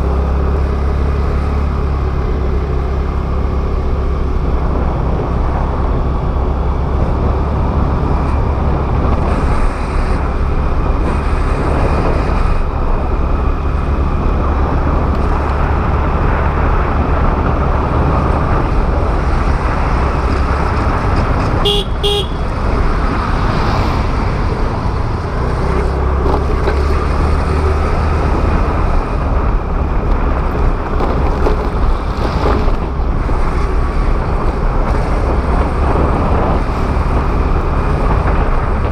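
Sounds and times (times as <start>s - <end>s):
wind and road noise: 0.0s - 38.9s
vehicle horn beeping: 21.6s - 22.5s.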